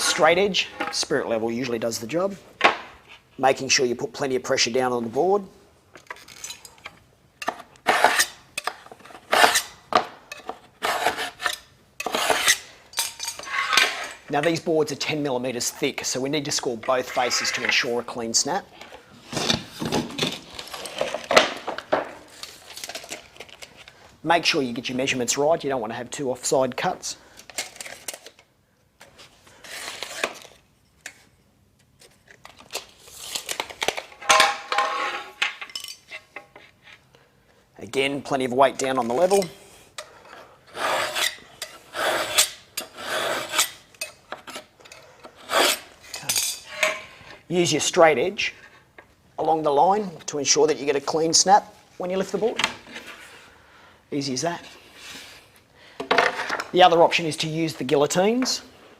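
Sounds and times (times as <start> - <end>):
knife scraping cement board: 7.8 - 8.4, 10.8 - 12.7, 40.7 - 43.8.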